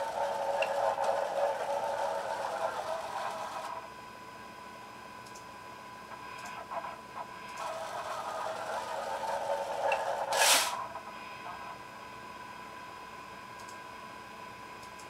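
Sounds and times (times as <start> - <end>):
motor carriage humming and whining: 0.0 - 4.0, 6.2 - 12.2.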